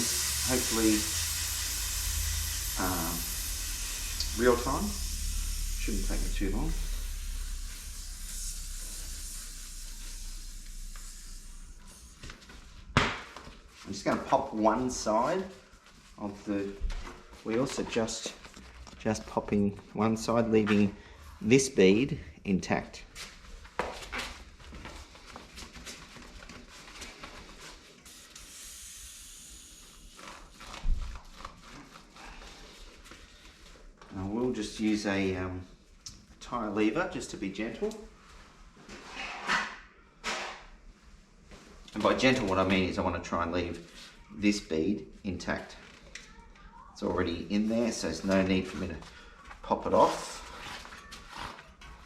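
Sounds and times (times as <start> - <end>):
air hissing out of tyre valve: 0.0 - 12.9, 28.0 - 30.4.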